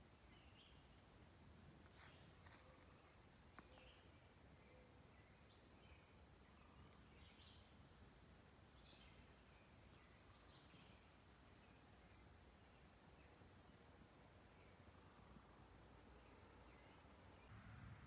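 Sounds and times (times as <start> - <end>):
faint outdoor ambience: 0.0 - 18.0
bird chirping softly: 1.9 - 15.2.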